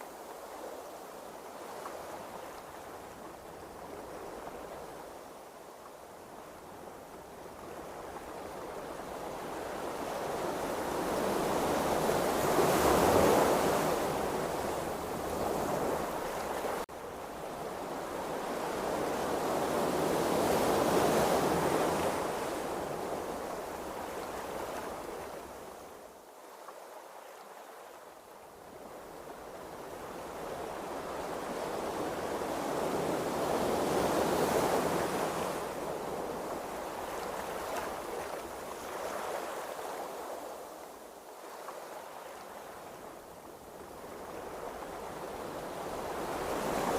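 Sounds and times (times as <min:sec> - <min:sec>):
ocean waves washing: 0:28.6 - 0:46.9.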